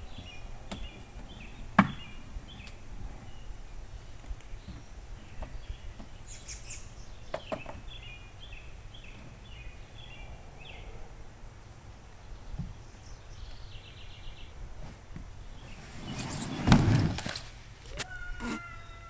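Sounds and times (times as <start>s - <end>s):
bird chirping: 0.0s - 11.1s, 12.1s - 14.6s.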